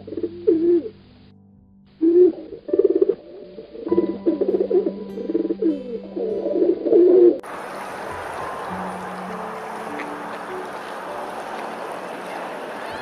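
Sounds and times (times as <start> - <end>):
birds cooing: 0.0 - 0.9, 2.0 - 12.8
steady hiss: 7.4 - 13.0.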